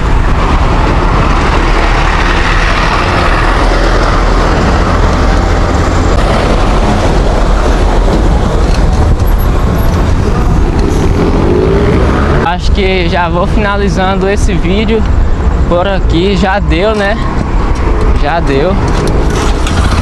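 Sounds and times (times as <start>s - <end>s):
wind on microphone: 0.0s - 12.5s
passing road traffic: 0.0s - 20.0s.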